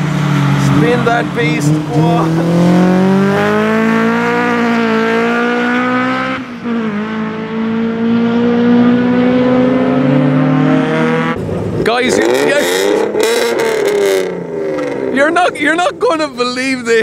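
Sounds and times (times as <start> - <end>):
race car accelerating: 0.0 - 16.3.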